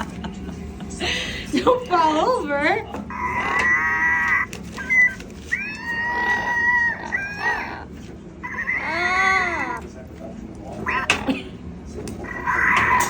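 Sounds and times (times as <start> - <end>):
parrot grumbling calls: 3.1 - 9.9, 10.7 - 11.4, 12.2 - 13.0.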